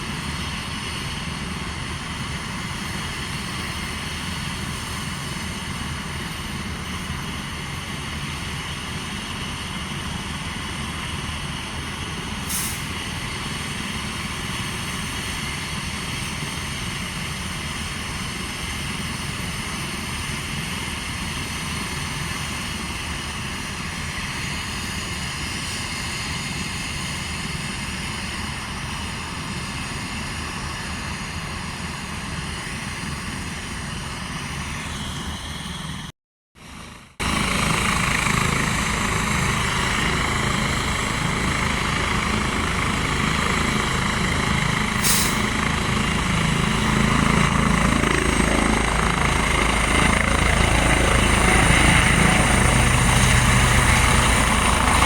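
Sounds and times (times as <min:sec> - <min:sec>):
helicopter engine and rotor: 0:00.0 - 0:55.0
helicopter turbine whine: 0:00.0 - 0:55.0
short hiss: 0:12.5 - 0:12.9, 0:45.0 - 0:45.5.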